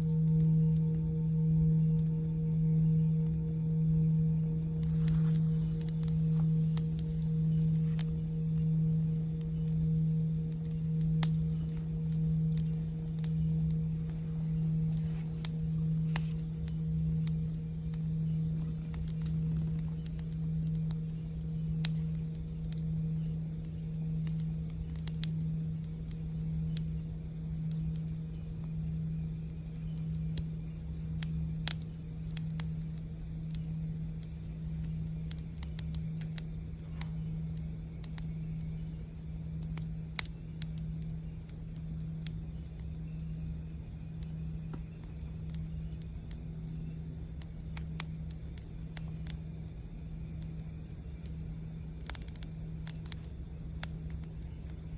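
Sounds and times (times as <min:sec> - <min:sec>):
singing bowl ringing: 0:00.0 - 0:17.5
campfire crackling: 0:00.0 - 0:54.9
singing bowl hum: 0:00.0 - 0:54.9.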